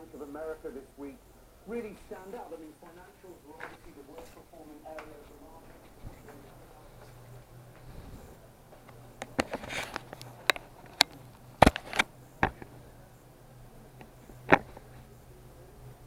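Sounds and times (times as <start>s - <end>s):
faint low hum: 0.0s - 16.0s
sharp clicks and knocks: 8.8s - 12.7s.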